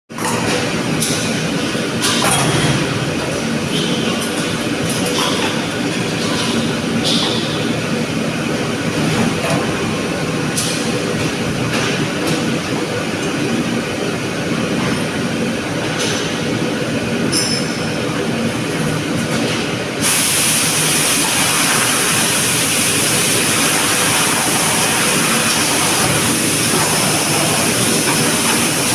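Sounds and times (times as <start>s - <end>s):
die casting machine running: 18.0s - 28.9s.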